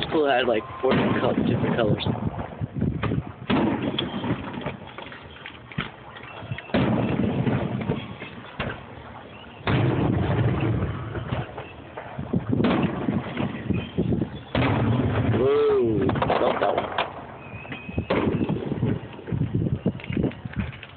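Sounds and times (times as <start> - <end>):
fireworks booming: 0.8 - 5.0, 5.8 - 20.0
fireworks pops and crackles: 0.9 - 20.9.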